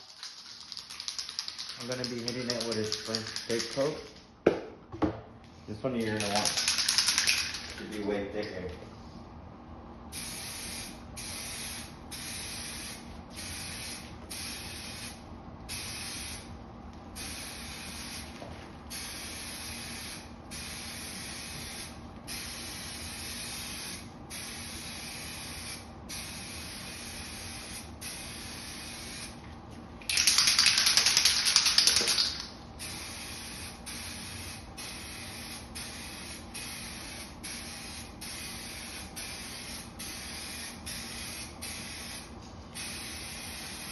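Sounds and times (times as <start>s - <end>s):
aerosol can spraying: 30.1s - 43.9s.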